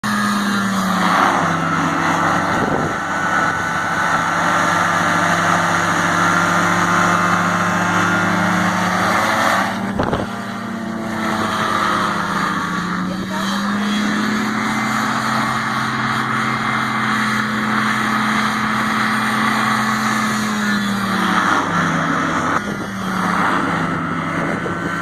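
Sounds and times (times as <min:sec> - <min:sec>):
hovercraft engine and fan: 0:00.0 - 0:25.0
rushing air: 0:00.9 - 0:13.3.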